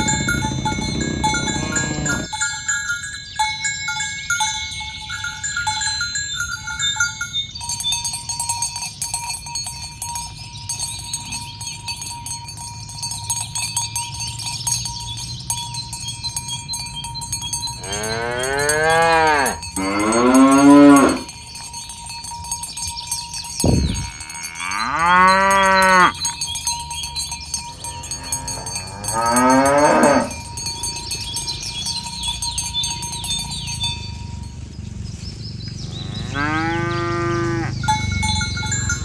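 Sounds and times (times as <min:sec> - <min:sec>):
cow mooing: 0:00.0 - 0:02.3, 0:17.8 - 0:21.3, 0:23.7 - 0:26.3, 0:27.8 - 0:30.4, 0:35.9 - 0:37.9
cowbells clinking: 0:00.0 - 0:39.0.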